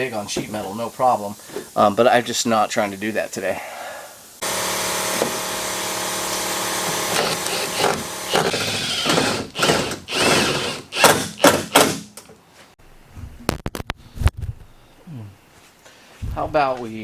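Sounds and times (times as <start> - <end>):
power tool whining: 4.4 - 12.0.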